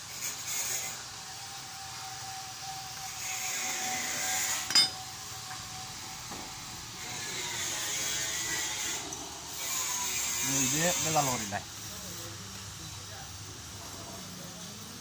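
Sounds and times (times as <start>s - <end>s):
steady high hiss: 0.0s - 15.0s
metallic clink: 4.7s - 5.1s.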